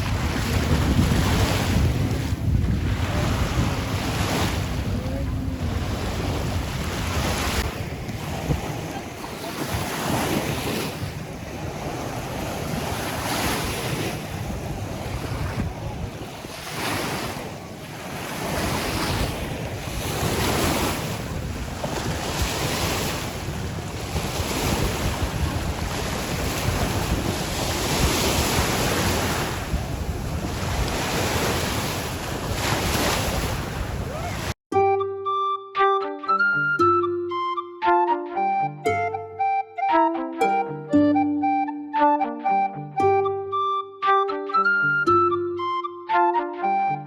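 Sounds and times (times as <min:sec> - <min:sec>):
lake water washing: 0:00.0 - 0:34.6
wind buffeting microphone: 0:00.0 - 0:34.6.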